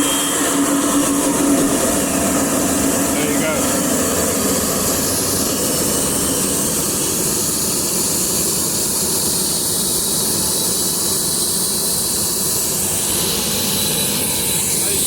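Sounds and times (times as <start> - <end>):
turbo high whine: 0.0 - 9.6
jet engine rushing hiss: 0.0 - 15.0.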